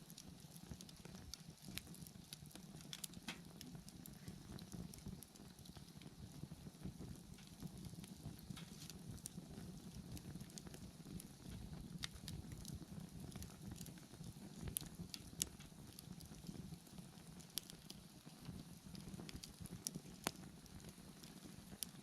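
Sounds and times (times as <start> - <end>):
bonfire flame rushing: 0.0 - 22.0
fire crackling and popping: 0.0 - 22.0.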